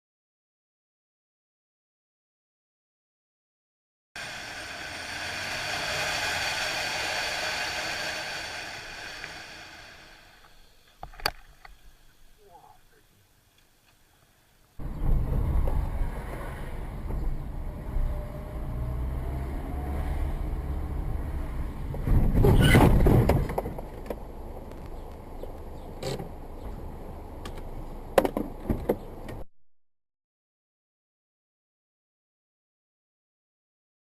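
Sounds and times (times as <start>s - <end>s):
vehicle engine rumbling: 4.2s - 10.6s, 14.8s - 29.4s.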